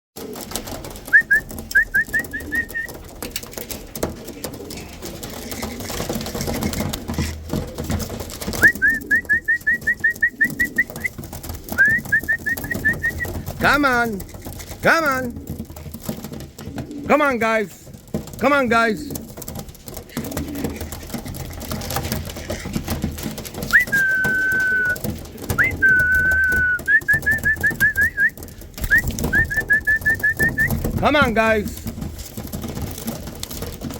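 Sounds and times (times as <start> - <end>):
pigeons cooing: 0.2 - 17.5, 19.1 - 31.0
person whistling: 1.1 - 2.9, 8.6 - 11.1, 11.8 - 13.3, 23.7 - 25.0, 25.6 - 30.8
rising whistle-like chirps: 23.8 - 25.0.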